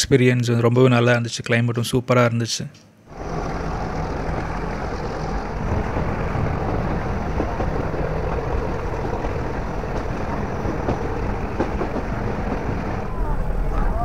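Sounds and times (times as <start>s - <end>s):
train wheels rumbling and rattling: 3.1s - 14.0s.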